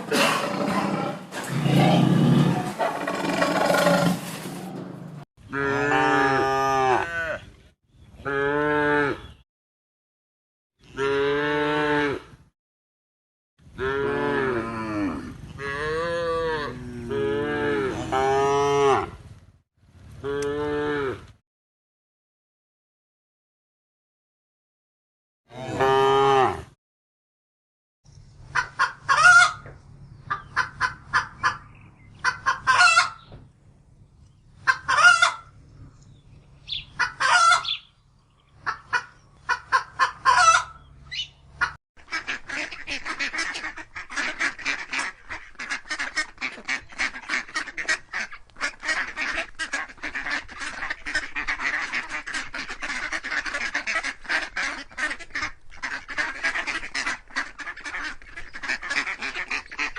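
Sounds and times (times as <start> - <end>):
geese calling: 30.3 - 33.3, 34.7 - 35.5, 36.7 - 37.9, 38.6 - 59.9
flock calling: 36.7 - 37.9.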